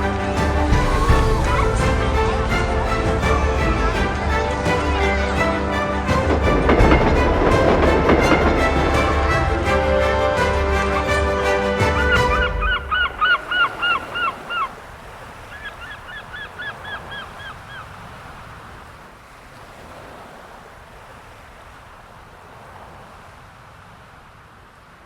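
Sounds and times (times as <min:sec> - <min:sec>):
soundtrack music: 0:00.0 - 0:14.3
soft steady rush: 0:00.0 - 0:16.8
gull calling: 0:00.0 - 0:18.0.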